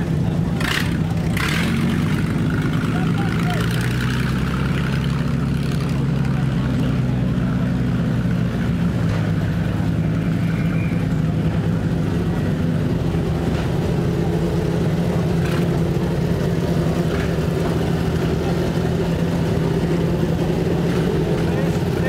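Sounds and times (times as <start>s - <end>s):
race car engine running: 0.0s - 22.0s.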